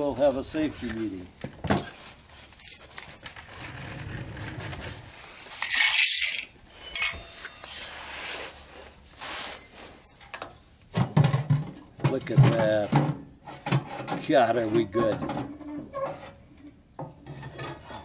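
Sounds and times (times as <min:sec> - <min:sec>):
metal parts clinking and scraping: 0:01.7 - 0:10.6.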